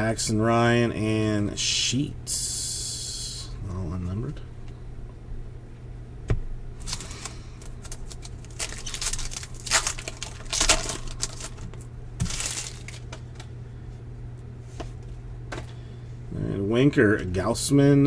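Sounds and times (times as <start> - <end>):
low electrical hum: 0.0 - 18.0
cards and packaging rustling: 6.8 - 13.5.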